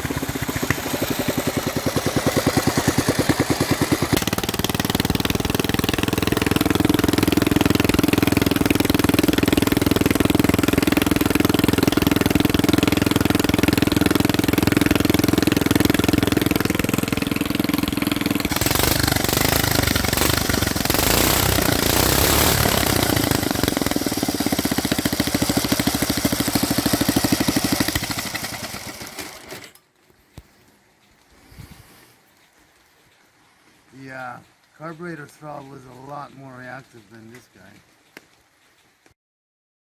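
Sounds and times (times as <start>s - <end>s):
small petrol engine running: 0.0s - 29.8s.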